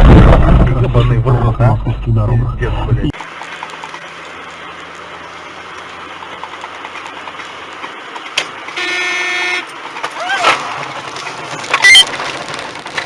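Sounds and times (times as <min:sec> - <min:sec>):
car road and engine noise: 0:00.0 - 0:13.0
car horn: 0:08.7 - 0:09.8.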